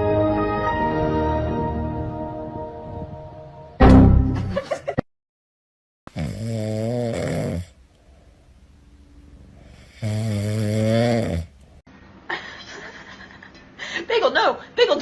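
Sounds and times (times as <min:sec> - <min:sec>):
person snoring: 0:06.1 - 0:07.8, 0:09.6 - 0:11.6.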